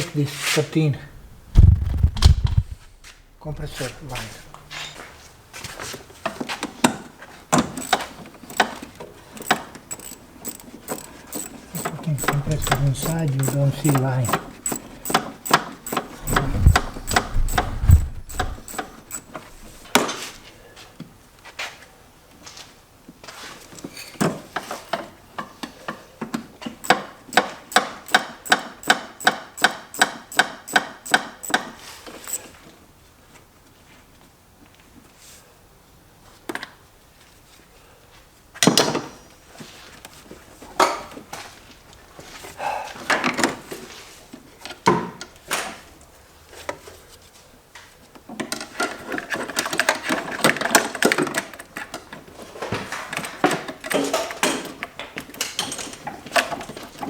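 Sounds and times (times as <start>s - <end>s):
ratchet wrench clicking: 7.7s - 19.9s, 26.8s - 31.6s, 32.2s - 32.5s
metal tools clanking: 9.4s - 19.9s.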